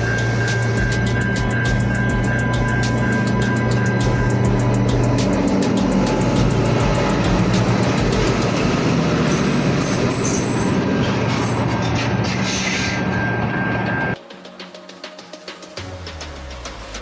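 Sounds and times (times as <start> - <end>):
diesel train rumbling past: 0.0 - 14.2.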